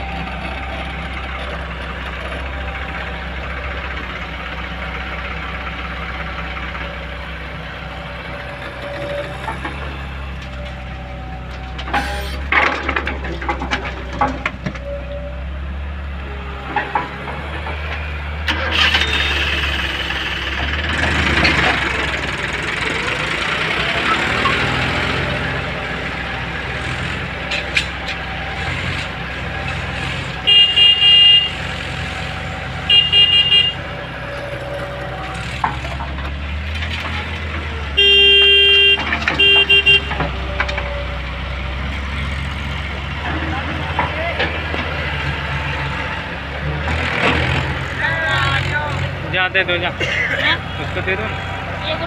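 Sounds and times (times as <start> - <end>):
diesel engine running: 0.0 - 52.0
vehicle horn honking: 30.4 - 31.7, 32.8 - 34.4, 38.0 - 40.2.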